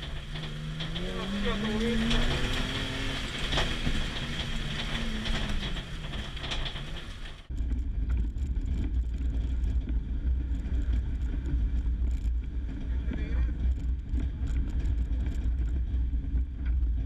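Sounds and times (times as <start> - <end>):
clicks and knocks from car: 0.0 - 7.5
deep muffled rumble: 0.0 - 17.0
rally car engine running hard: 0.0 - 17.0.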